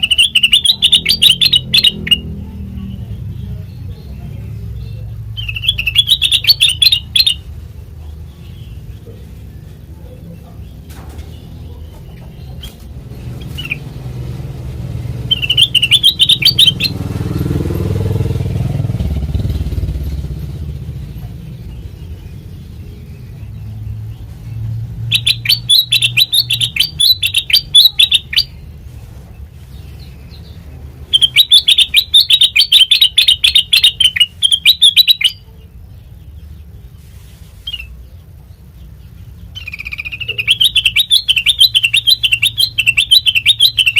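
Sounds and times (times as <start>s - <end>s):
bird chattering song: 0.0s - 17.7s, 18.6s - 43.9s.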